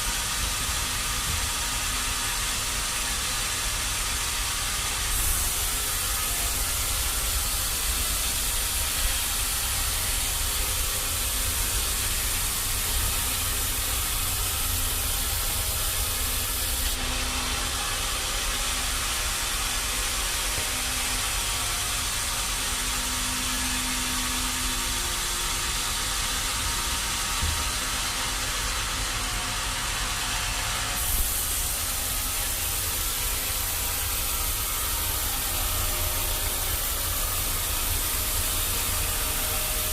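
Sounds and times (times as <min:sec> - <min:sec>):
sawmill machinery rumbling and hissing: 0:00.0 - 0:39.9.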